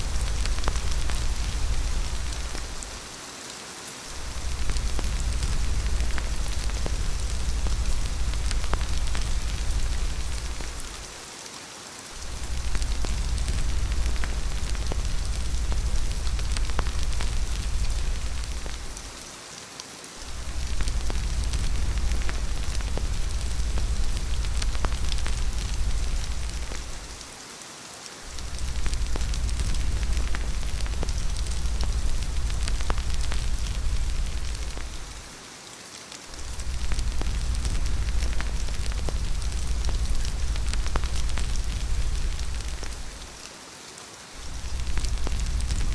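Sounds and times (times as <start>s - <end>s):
deep low rumble: 0.0s - 3.0s, 4.2s - 11.1s, 12.2s - 19.1s, 20.3s - 27.2s, 28.3s - 35.3s, 36.4s - 43.3s, 44.4s - 45.9s
steady rain: 0.0s - 45.9s.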